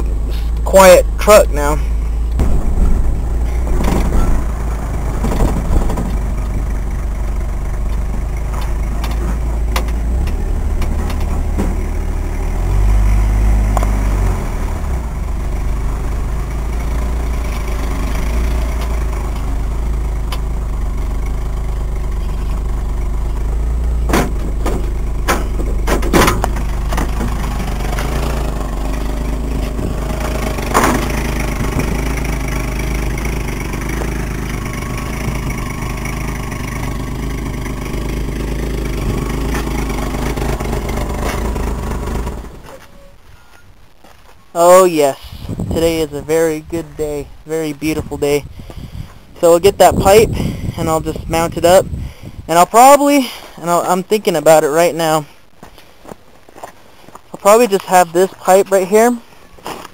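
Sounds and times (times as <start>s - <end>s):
car engine droning: 0.0s - 59.9s
sharp knocks and rattles: 2.4s - 6.9s, 7.8s - 12.0s, 23.8s - 42.8s.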